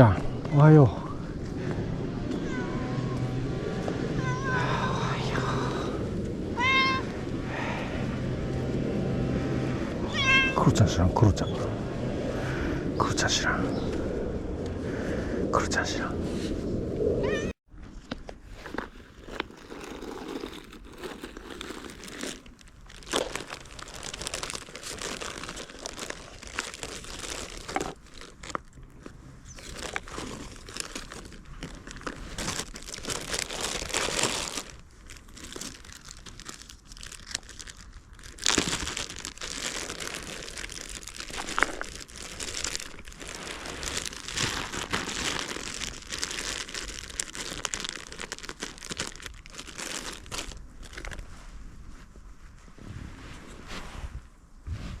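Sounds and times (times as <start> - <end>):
plastic packaging crinkling: 18.5 - 51.2.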